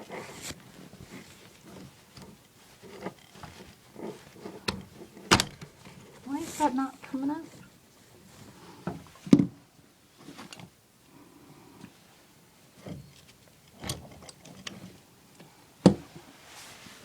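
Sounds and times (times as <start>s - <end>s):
plumbing parts knocking and clicking: 4.4s - 6.0s.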